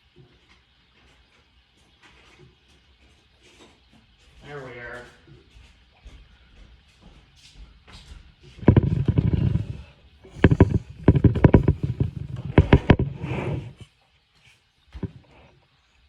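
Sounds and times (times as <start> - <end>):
rapid clicks and knocks: 8.6 - 13.6
low rumble: 8.7 - 13.8.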